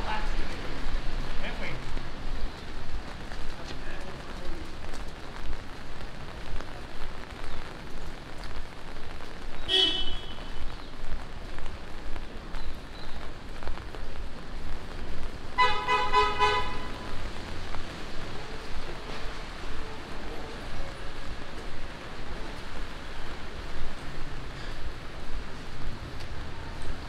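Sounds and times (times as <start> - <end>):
rain falling on street: 0.0 - 27.0
car horn beeps: 9.7 - 10.5, 15.6 - 17.0.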